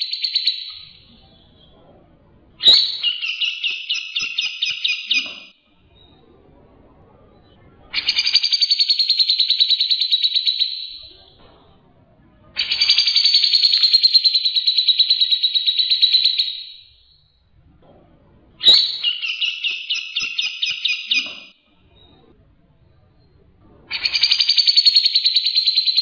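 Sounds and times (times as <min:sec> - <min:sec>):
songbird trilling: 0:12.6 - 0:16.7, 0:18.6 - 0:21.5.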